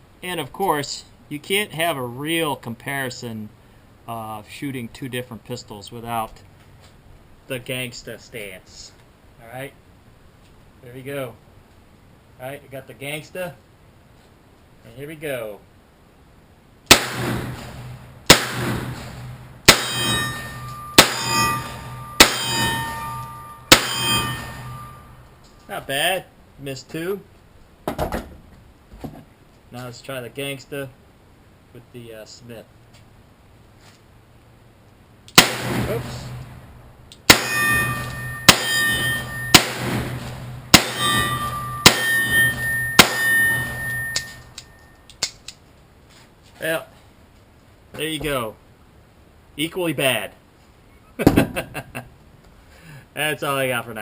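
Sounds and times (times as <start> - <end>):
gunshot echo: 16.9 - 22.9, 23.7 - 25.0, 35.4 - 36.3, 37.3 - 44.2
revolver shots: 16.9 - 22.9, 23.7 - 24.9, 37.2 - 44.4
metallic ringing tone: 19.7 - 25.7, 37.3 - 45.1.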